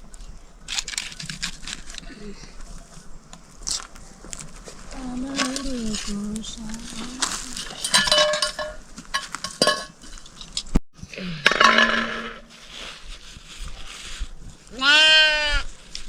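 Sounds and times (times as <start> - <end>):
metal clinking: 5.4 - 10.7.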